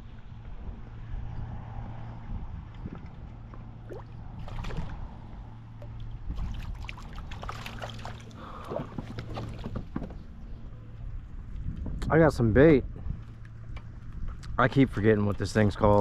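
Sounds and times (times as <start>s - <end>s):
wind rumble: 0.0s - 16.0s
water splashing: 3.8s - 5.0s, 5.8s - 9.6s.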